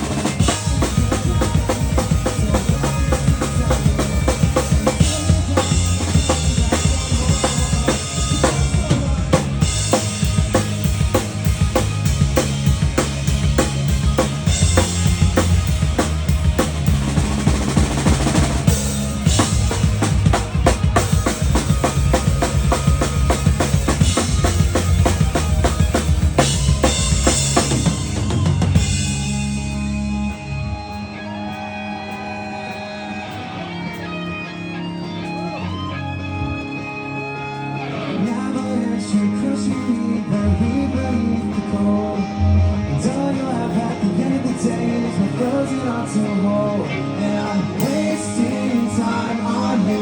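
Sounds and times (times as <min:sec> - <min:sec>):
drum kit pounding: 0:00.0 - 0:30.4
electric guitar bending notes: 0:00.0 - 0:50.0
live rock band playing: 0:00.0 - 0:50.0.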